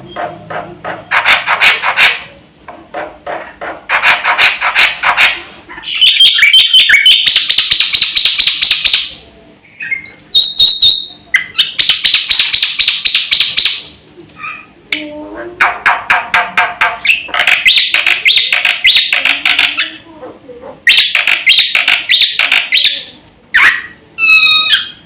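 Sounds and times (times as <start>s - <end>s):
starling singing: 5.7s - 20.0s, 20.8s - 25.0s.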